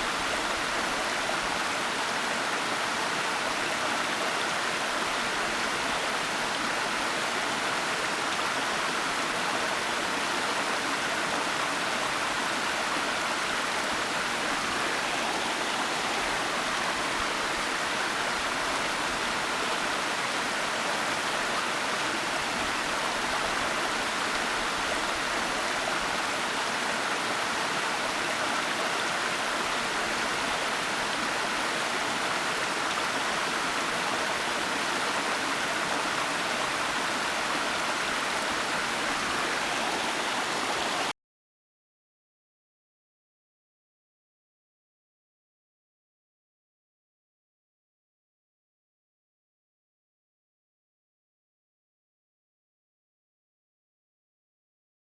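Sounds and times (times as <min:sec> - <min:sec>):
waterfall rushing: 0:30.6 - 0:41.1.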